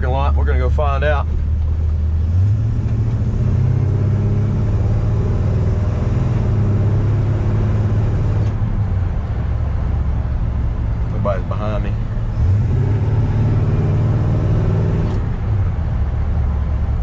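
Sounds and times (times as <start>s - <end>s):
pickup truck engine driving: 0.0s - 17.0s
road noise: 0.0s - 17.0s.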